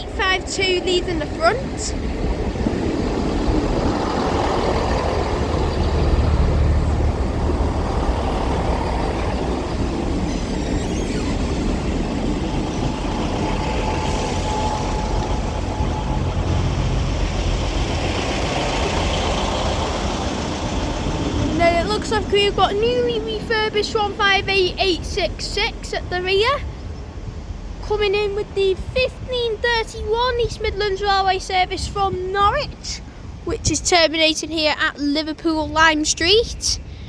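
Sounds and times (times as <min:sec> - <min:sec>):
wheel and track noise: 0:00.0 - 0:27.8
train diesel rumble: 0:00.0 - 0:37.0.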